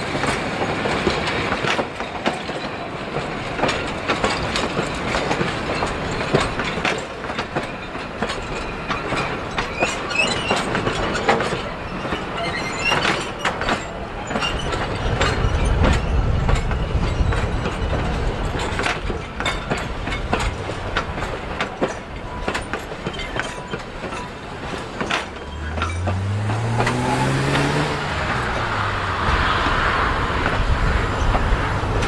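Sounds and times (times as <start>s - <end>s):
train rumble: 0.0s - 32.0s
train wheels clicking over rail joints: 0.0s - 32.0s
wheel squeal: 8.5s - 17.3s, 25.1s - 30.0s.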